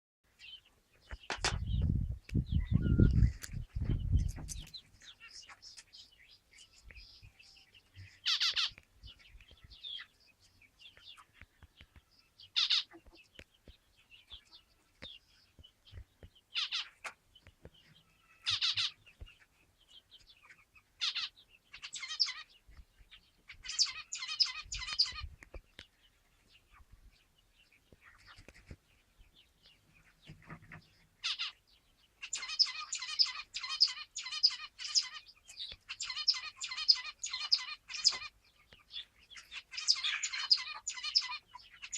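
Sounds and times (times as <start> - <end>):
finches calling: 23.5 - 25.3, 31.2 - 31.6, 32.2 - 38.4, 39.0 - 41.9.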